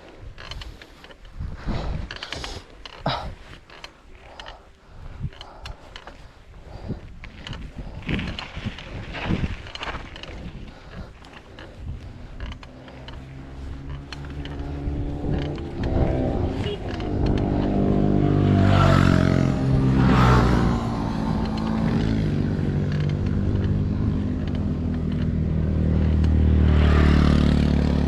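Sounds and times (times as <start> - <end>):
vehicle engine running: 8.8 - 28.0.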